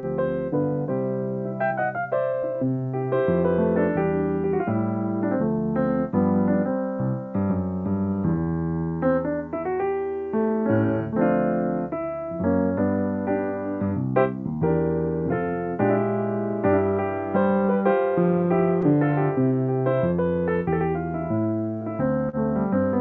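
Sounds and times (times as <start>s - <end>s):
solo piano: 0.0s - 23.0s.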